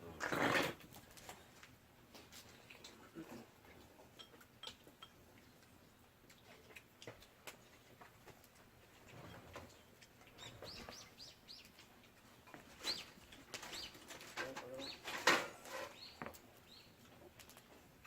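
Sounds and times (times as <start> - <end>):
small bird chirping: 9.2 - 12.0, 12.7 - 14.1, 15.8 - 17.1.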